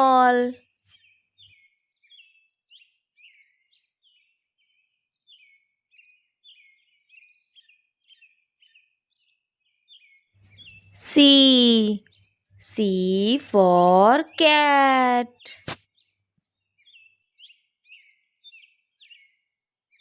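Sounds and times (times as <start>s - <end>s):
faint bird chirping: 0.0s - 20.0s.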